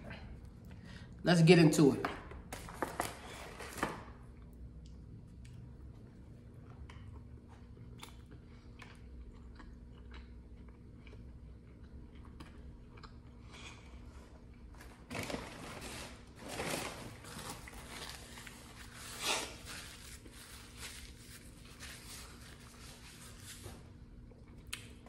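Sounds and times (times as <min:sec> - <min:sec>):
low room hum: 0:00.0 - 0:25.0
rustling handling noises: 0:14.8 - 0:23.8.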